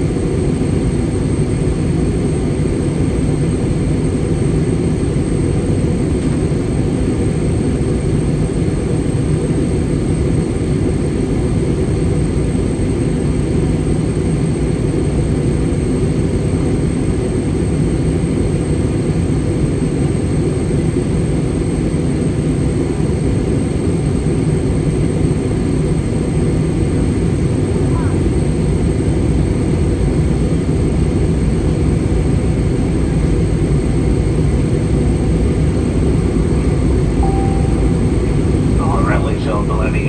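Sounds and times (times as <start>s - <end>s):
airplane cabin airflow and engine drone: 0.0s - 40.0s
faint high whine: 37.1s - 40.0s.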